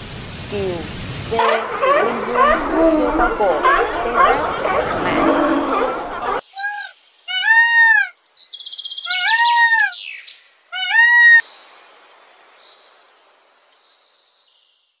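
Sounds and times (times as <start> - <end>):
peafowl calling: 1.4 - 8.2, 9.0 - 10.1, 10.7 - 11.4.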